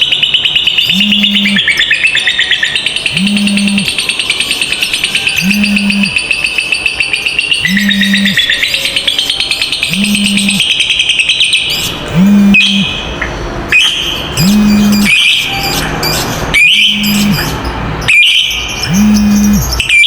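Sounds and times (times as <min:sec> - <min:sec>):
lovebirds chattering trill: 0:00.0 - 0:20.0
low hum: 0:03.1 - 0:03.9, 0:12.0 - 0:12.9, 0:14.4 - 0:15.1, 0:16.8 - 0:17.5, 0:18.9 - 0:19.7.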